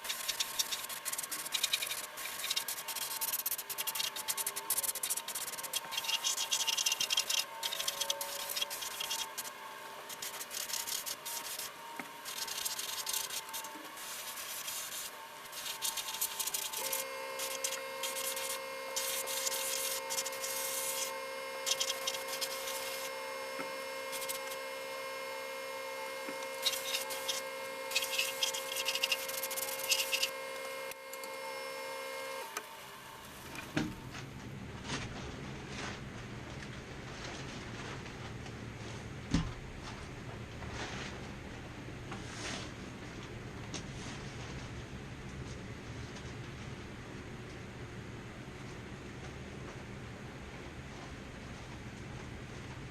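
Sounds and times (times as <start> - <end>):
abrasive rubbing on steel: 0.0 - 24.6, 26.5 - 30.4
steady hum: 0.0 - 52.9.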